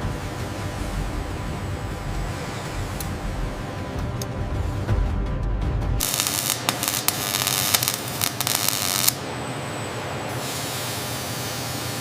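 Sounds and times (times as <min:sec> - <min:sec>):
loud hissing with crackles: 0:06.0 - 0:09.2.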